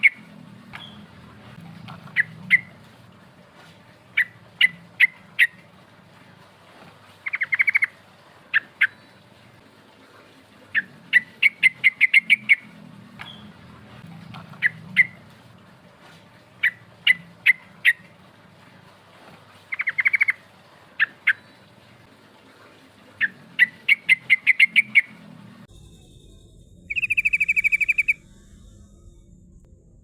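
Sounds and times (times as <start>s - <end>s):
faint low hum: 24.8s - 30.0s
bulbul calling in sharp notes: 26.9s - 28.2s.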